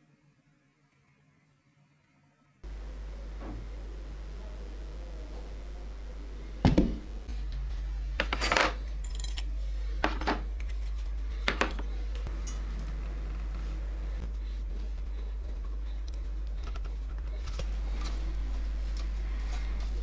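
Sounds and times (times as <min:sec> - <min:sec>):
steady low hum: 0:02.6 - 0:20.0
small metal parts clinking: 0:08.2 - 0:12.8.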